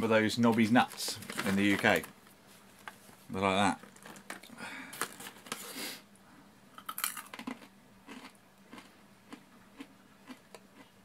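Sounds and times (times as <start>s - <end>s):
crunchy snack chewing: 6.8s - 10.9s.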